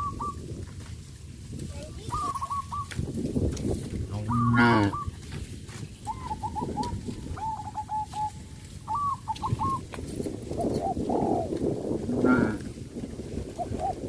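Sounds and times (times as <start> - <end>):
bird cooing: 0.0 - 0.4, 1.8 - 3.0, 4.1 - 5.3, 6.0 - 9.9, 10.5 - 12.6, 13.5 - 14.0
cattle munching leaves: 0.0 - 14.0.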